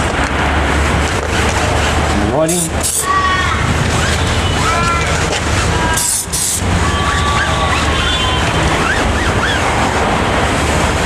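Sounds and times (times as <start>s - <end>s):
steady rumbling: 0.0s - 11.0s
aerosol can hissing: 2.5s - 3.1s, 6.0s - 6.7s.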